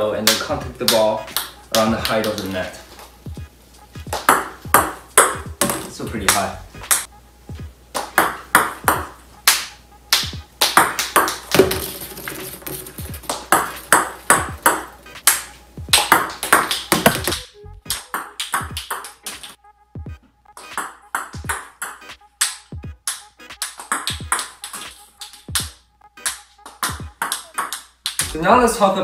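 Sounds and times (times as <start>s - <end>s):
table tennis ball clicking: 8.0s - 15.4s, 16.0s - 19.5s, 26.2s - 28.3s.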